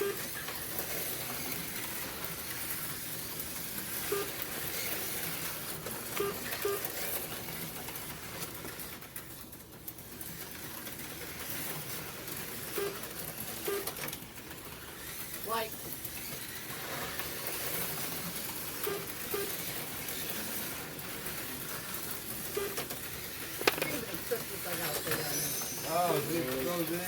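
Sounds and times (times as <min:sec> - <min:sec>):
short electronic beeps: 0:04.1 - 0:04.4, 0:13.7 - 0:13.9, 0:18.8 - 0:19.6, 0:22.5 - 0:22.8
slot car motors hissing: 0:14.2 - 0:27.0.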